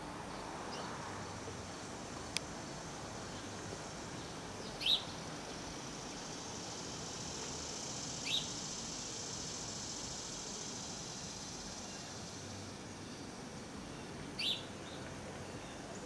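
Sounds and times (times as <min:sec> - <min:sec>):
outdoor background hiss: 0:00.0 - 0:16.0
bird chirping: 0:04.2 - 0:05.2, 0:08.2 - 0:08.5, 0:13.0 - 0:16.0.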